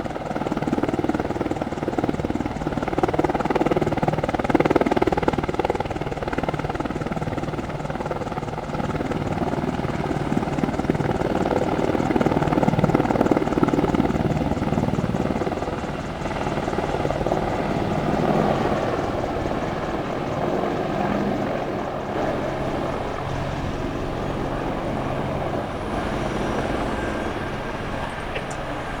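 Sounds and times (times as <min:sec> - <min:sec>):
aircraft engine drone: 0:08.6 - 0:29.0.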